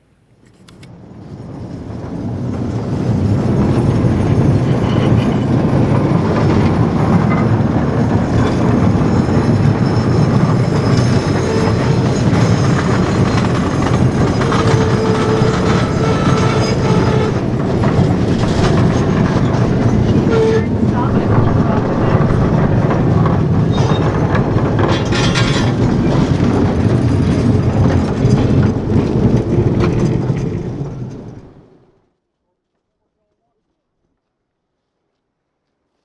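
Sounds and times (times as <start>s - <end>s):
train wheels rumbling and clattering: 0.8s - 32.2s
faint wheel squeal: 8.4s - 18.8s.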